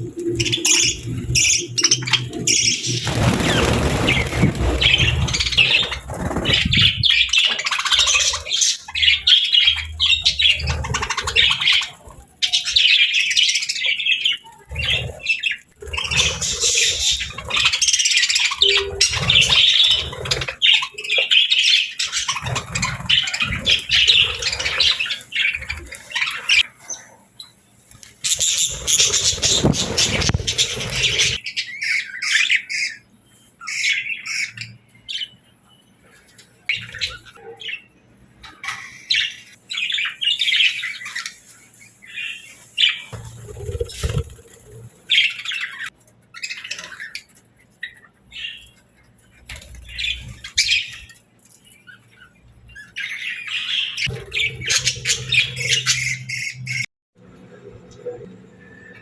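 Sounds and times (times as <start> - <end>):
budgerigars chirping and chattering: 0.0 - 56.9
bird squawks: 28.2 - 34.8.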